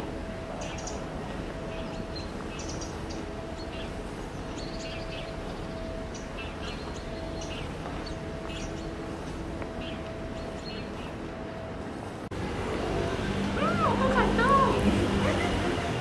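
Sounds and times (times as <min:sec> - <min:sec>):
small birds chirping: 0:00.0 - 0:11.4
steady low rumble: 0:00.0 - 0:16.0.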